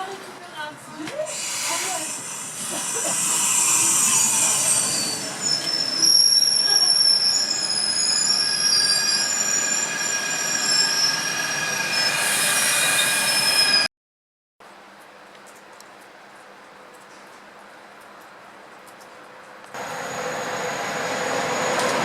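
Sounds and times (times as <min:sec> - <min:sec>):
train rumble: 0:00.0 - 0:13.2, 0:19.8 - 0:22.0
hiss: 0:01.3 - 0:05.4
train wheels squealing on rails: 0:01.3 - 0:13.9, 0:19.8 - 0:22.0.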